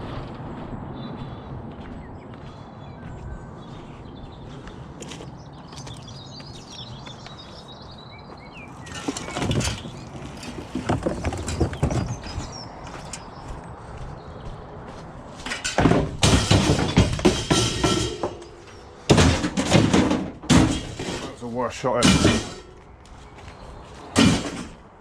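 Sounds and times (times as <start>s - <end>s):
small birds chirping: 0.5s - 15.4s, 20.8s - 24.2s
rustling and clattering: 8.8s - 13.4s, 15.3s - 25.0s.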